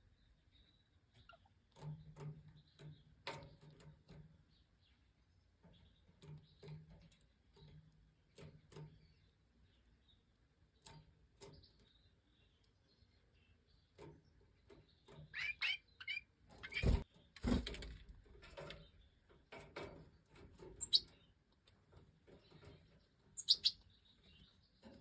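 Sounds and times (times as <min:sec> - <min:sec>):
high bird chirps: 0:15.0 - 0:17.1, 0:20.8 - 0:21.3, 0:23.3 - 0:24.9.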